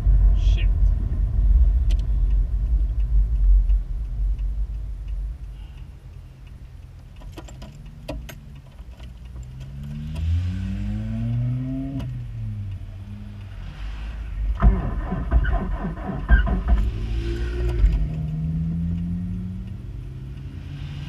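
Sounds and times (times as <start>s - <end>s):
car engine revving: 0.0s - 21.0s
engine rattling clatter: 14.3s - 18.3s.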